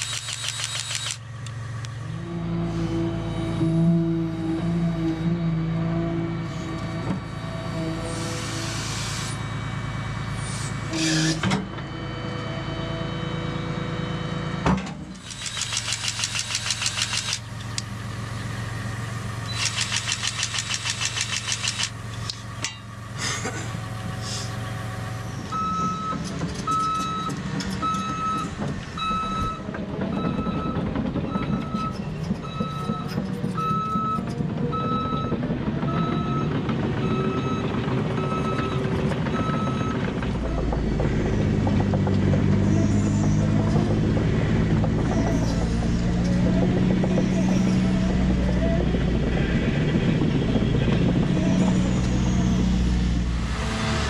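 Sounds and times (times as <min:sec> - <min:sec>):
diesel engine running: 0:00.0 - 0:54.0
backup alarm beeping: 0:25.5 - 0:34.2.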